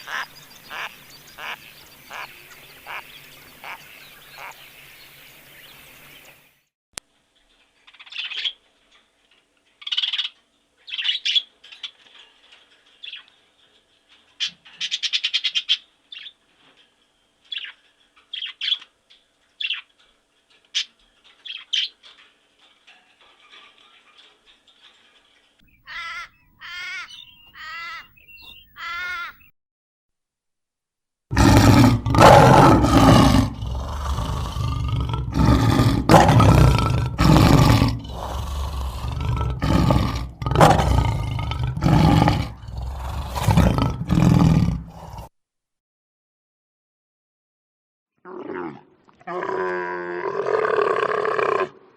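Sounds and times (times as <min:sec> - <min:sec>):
short wavering calls: 0:00.0 - 0:06.4
bird chirping: 0:00.0 - 0:06.7, 0:07.8 - 0:08.6, 0:09.8 - 0:13.4, 0:23.4 - 0:29.5
deep rough animal roar: 0:31.3 - 0:45.3, 0:48.3 - 0:51.9.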